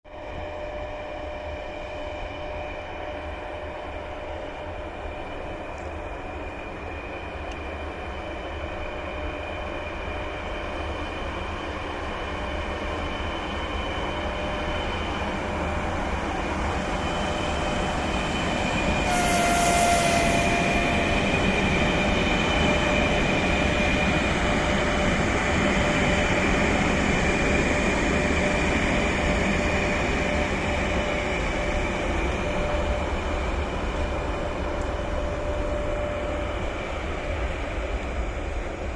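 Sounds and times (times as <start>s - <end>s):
rumble of train wheels: 0.0s - 38.9s
electric locomotive whine: 0.1s - 38.9s
brake hiss and squeal: 19.0s - 21.5s.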